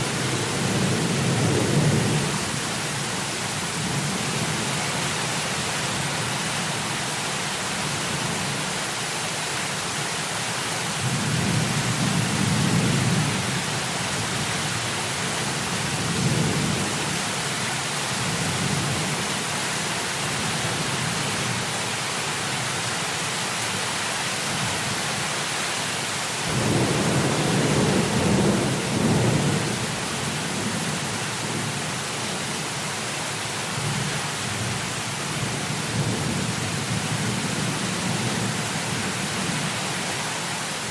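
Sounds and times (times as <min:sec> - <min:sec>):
heavy rain: 0:00.0 - 0:40.9
thunder rumbling: 0:26.5 - 0:30.1.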